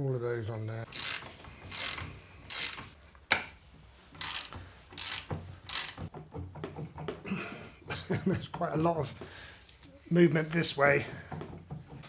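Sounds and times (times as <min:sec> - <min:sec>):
ratchet wrench clicking: 0:00.9 - 0:03.0, 0:04.2 - 0:06.1.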